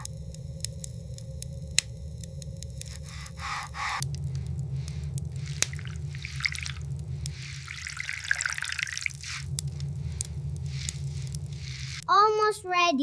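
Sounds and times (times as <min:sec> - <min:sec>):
steady low rumble: 0:00.0 - 0:13.0
water dripping and trickling: 0:04.0 - 0:12.1.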